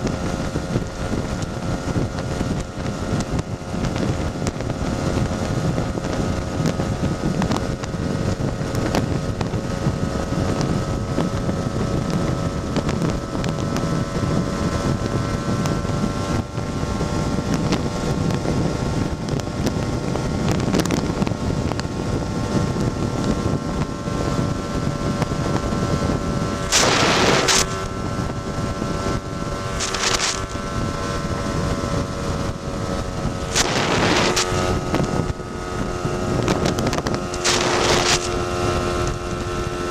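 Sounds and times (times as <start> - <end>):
scooter engine cruising: 0.0 - 39.9
wind noise on microphone: 0.0 - 39.9
short hissing rushes: 26.6 - 27.9, 29.7 - 30.7.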